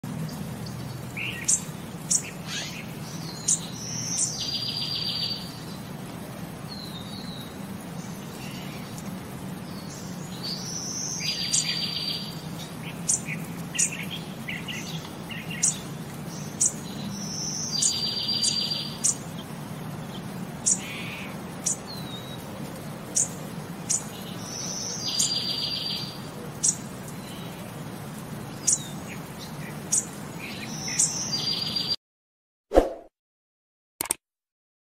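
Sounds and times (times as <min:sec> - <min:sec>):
bird song with buzzy trill: 0:00.2 - 0:06.0, 0:06.6 - 0:32.0.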